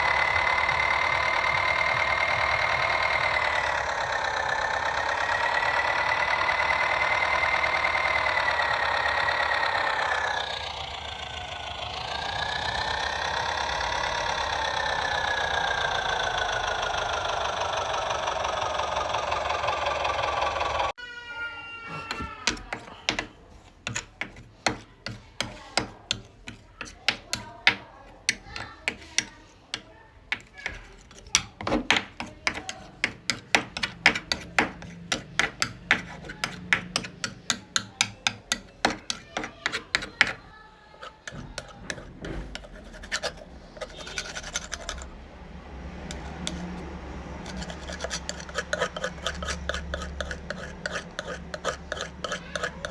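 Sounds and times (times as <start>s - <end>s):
small motor whining: 0.0s - 21.2s, 30.4s - 52.9s
sharp clicks and knocks: 22.1s - 45.1s.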